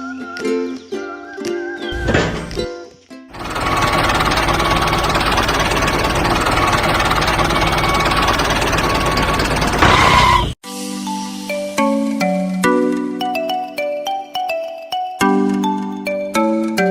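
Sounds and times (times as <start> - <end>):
tractor engine chugging: 2.0 - 2.7, 3.4 - 10.6.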